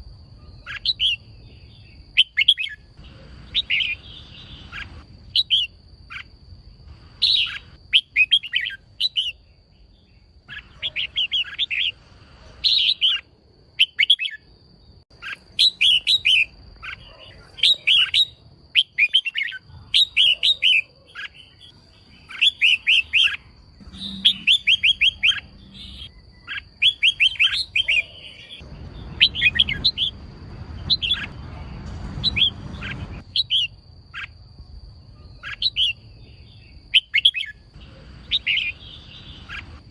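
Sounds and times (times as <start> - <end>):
bird chirping calls: 0.0 - 34.4, 35.0 - 39.9
faint high-pitched tone: 23.4 - 26.5.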